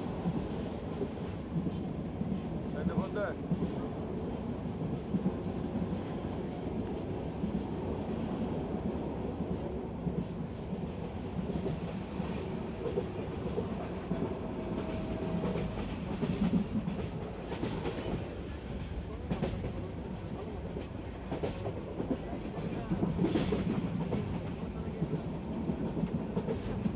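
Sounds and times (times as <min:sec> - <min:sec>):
train wheels rumbling on rails: 0:00.0 - 0:26.9
sharp clicks of train wheels: 0:10.0 - 0:26.9.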